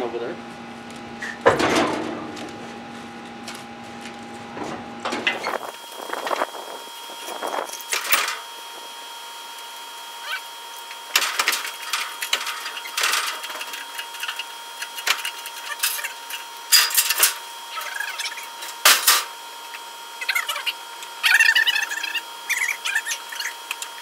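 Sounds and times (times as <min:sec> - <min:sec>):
faint steady whine: 0:00.0 - 0:24.0
squeaky chirps: 0:17.7 - 0:18.6, 0:20.2 - 0:23.6.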